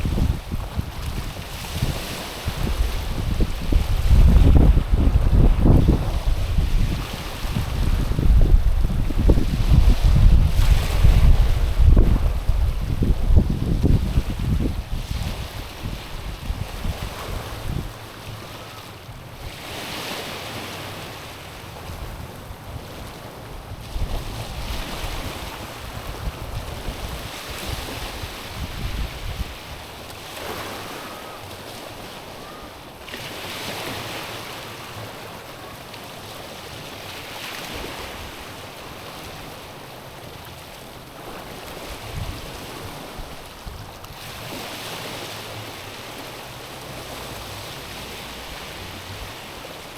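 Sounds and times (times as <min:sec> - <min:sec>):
wind buffeting microphone: 0:00.0 - 0:31.0, 0:41.2 - 0:49.9
waves washing over stony shore: 0:00.0 - 0:49.9.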